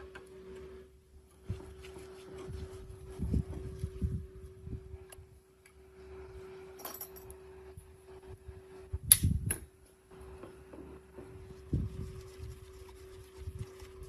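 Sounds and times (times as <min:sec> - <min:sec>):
faint steady hum: 0:00.0 - 0:14.0
sharp metallic click: 0:09.1 - 0:09.6.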